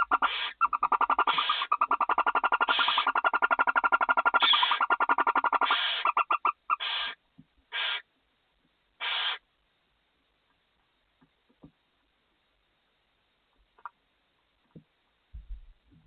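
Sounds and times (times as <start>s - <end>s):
owl hissing calls: 0.0s - 8.1s, 9.0s - 9.4s
owls chittering: 0.0s - 8.1s, 9.0s - 9.4s.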